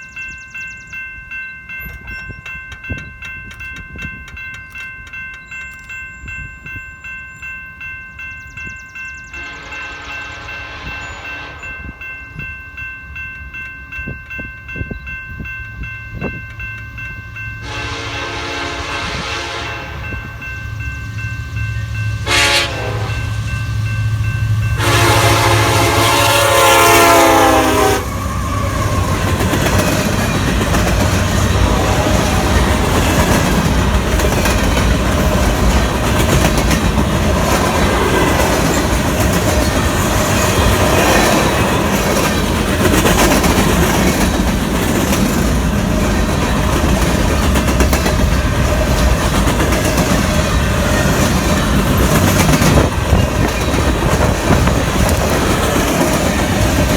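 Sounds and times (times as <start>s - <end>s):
locomotive horn: 9.4s - 12.0s, 17.6s - 20.3s, 22.2s - 23.5s, 24.7s - 29.2s, 31.3s - 33.3s
freight cars rumbling on rails: 14.8s - 56.9s.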